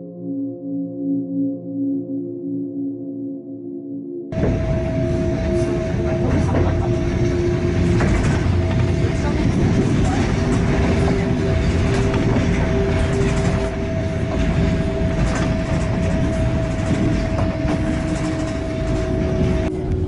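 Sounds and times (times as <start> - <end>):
steady whine: 0.0 - 20.0
wheels rumbling on rails: 4.3 - 20.0.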